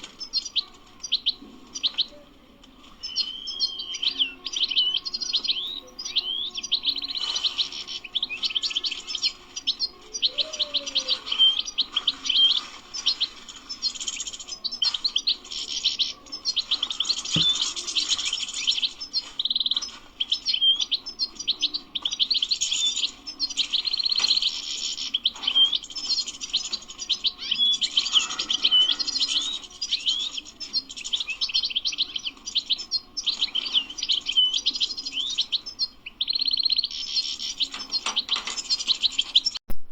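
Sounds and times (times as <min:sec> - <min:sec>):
goldfinch singing: 0:00.0 - 0:39.6.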